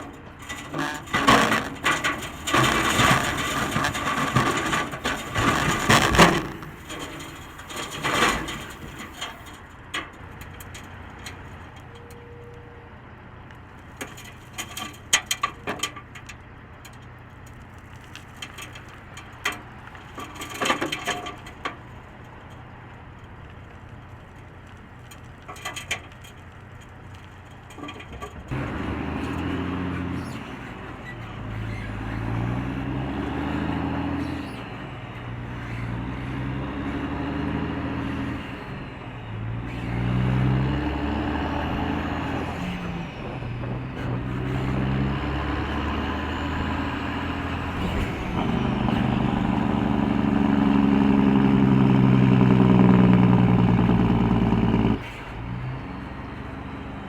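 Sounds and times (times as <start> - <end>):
heavy truck engine accelerating: 0.0 - 11.7, 28.2 - 57.0.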